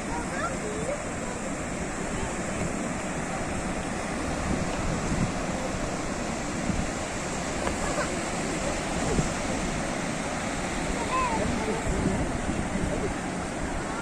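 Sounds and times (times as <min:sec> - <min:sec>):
ocean surf washing: 0:00.0 - 0:14.0.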